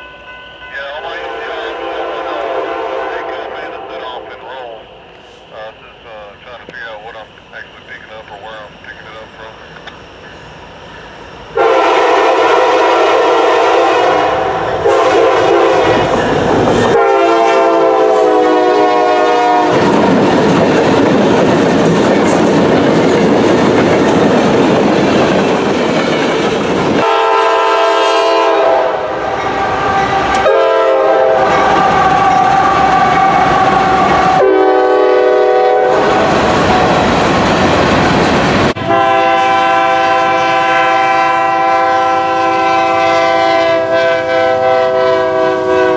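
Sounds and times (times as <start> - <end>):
rumble and clatter of passing trains: 0.0 - 45.9
locomotive air horn blasts: 1.0 - 4.4, 11.6 - 16.2, 16.9 - 19.9, 27.0 - 36.3, 38.8 - 45.9.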